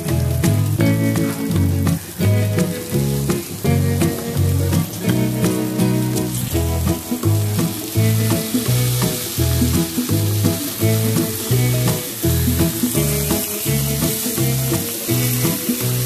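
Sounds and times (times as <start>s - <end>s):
background music with bass line: 0.0s - 16.0s
mushrooms sizzling in a grill pan: 0.0s - 16.0s.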